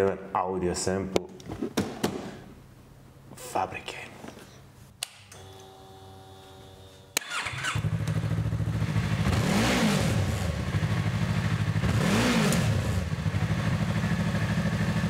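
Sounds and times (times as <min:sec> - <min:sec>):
motorcycle engine idling: 0:07.3 - 0:09.4, 0:10.1 - 0:11.9, 0:12.9 - 0:15.0.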